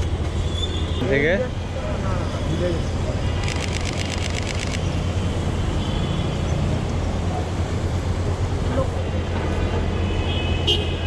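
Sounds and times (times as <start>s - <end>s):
street traffic rumble: 0.0s - 11.0s
rapid sharp clicks: 3.4s - 4.8s.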